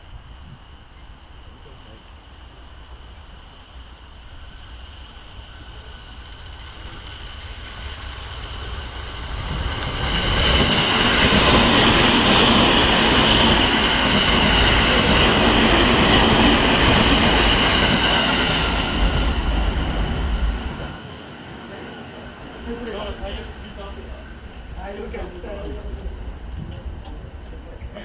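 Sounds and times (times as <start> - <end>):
train passing at speed: 0.0 - 28.0.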